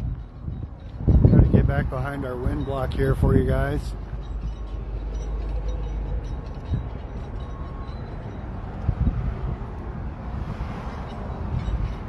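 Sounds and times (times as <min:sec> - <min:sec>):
dull low thumps: 0:00.0 - 0:01.9
heavy machinery rumble: 0:00.0 - 0:12.0
rail cars rumbling: 0:00.0 - 0:12.0
wind buffeting microphone: 0:00.0 - 0:12.0.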